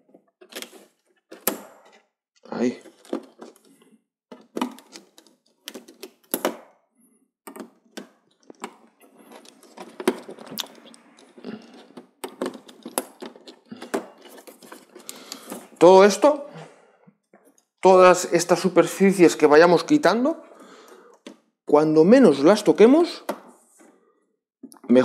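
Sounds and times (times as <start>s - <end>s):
plastic parts clicking and tapping: 2.8s - 6.7s, 7.5s - 15.7s, 21.1s - 21.4s.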